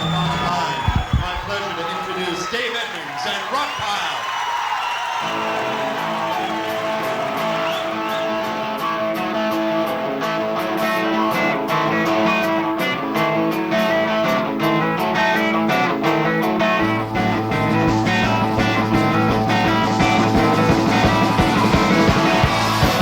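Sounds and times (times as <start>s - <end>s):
bass guitar: 0.0s - 1.5s, 5.3s - 23.0s
electric guitars: 0.0s - 1.5s, 5.2s - 23.0s
drum beat: 0.0s - 2.4s, 16.8s - 23.0s.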